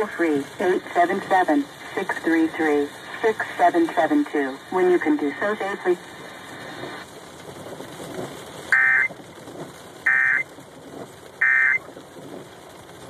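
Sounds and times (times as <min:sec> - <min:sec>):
rain hissing: 0:00.0 - 0:13.0
electronic data bursts: 0:08.7 - 0:09.1, 0:10.1 - 0:10.4, 0:11.4 - 0:11.8.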